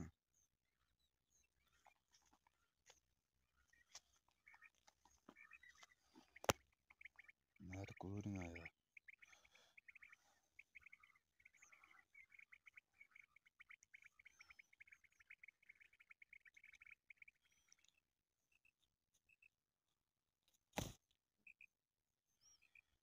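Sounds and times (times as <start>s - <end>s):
faint bird chirping: 0.0s - 23.0s
short sharp thump: 20.8s - 21.0s.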